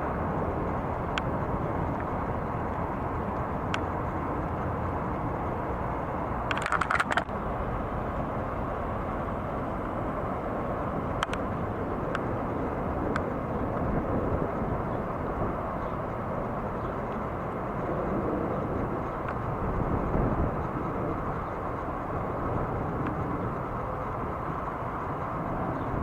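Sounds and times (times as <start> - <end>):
distant engine rumble: 0.0 - 26.0
sharp clicks: 6.4 - 7.4, 11.1 - 12.3.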